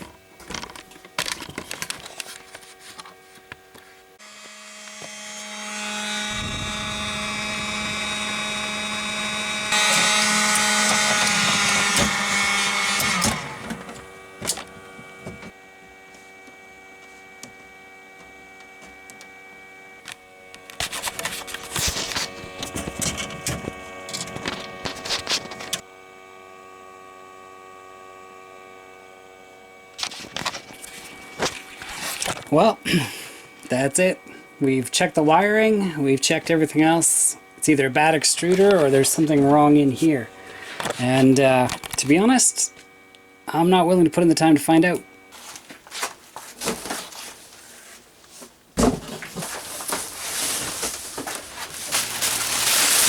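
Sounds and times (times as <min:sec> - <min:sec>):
small motor humming: 0:00.0 - 0:45.7, 0:49.5 - 0:53.0.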